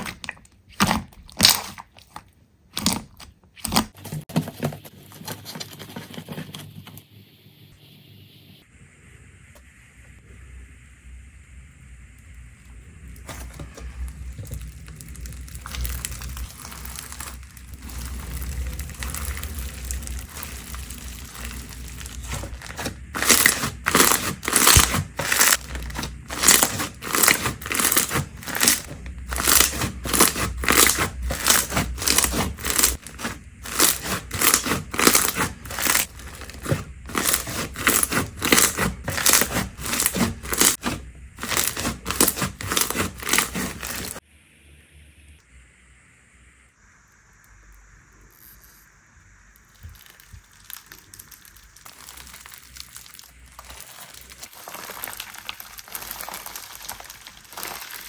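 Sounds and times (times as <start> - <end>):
slime crackling: 13.2 - 44.2, 49.6 - 58.0
slime rustling: 13.2 - 44.2, 49.7 - 58.0.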